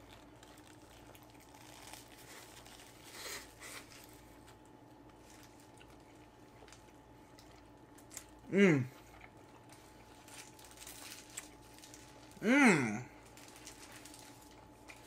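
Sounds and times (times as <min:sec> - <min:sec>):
faint chewing: 0:00.0 - 0:12.4.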